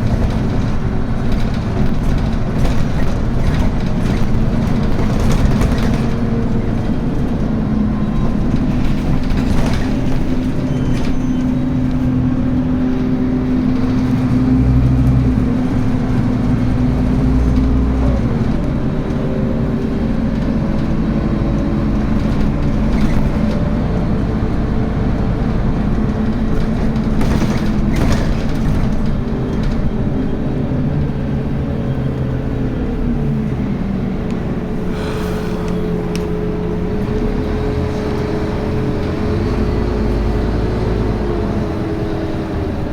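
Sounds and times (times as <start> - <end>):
sharp knocks and rattles: 0.0 - 7.3
bus diesel engine shifting gears: 0.0 - 42.9.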